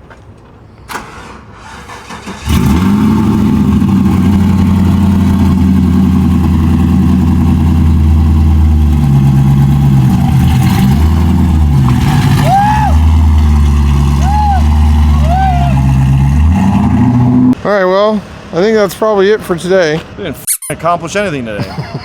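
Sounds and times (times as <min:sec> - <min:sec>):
car engine starting and running: 0:00.9 - 0:17.6
short squeal: 0:20.5 - 0:20.8.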